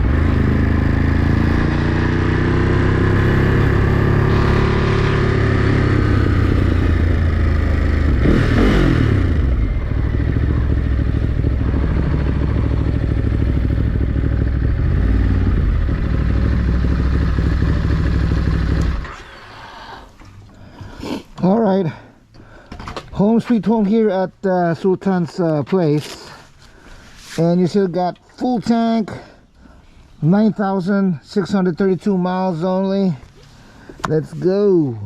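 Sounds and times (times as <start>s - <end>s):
motorcycle engine revving: 0.0s - 19.4s
road and wind noise: 0.0s - 19.5s.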